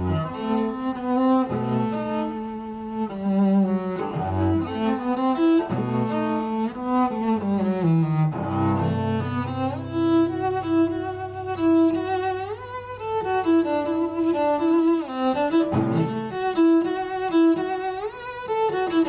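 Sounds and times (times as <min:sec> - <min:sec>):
cello playing slow melody: 0:00.0 - 0:19.0
long low held note: 0:07.3 - 0:16.4.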